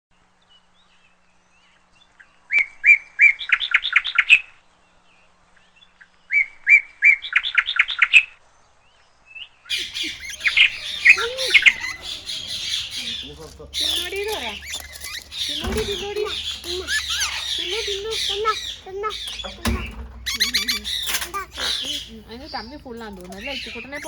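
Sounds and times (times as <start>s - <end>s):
bird chirping and squawking: 9.7s - 24.0s.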